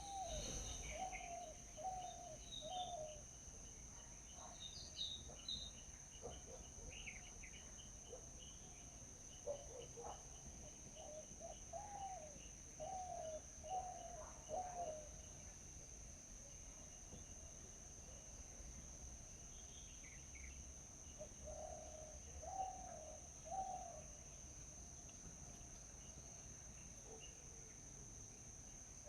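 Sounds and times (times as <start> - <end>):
birds calling: 0.0 - 3.2.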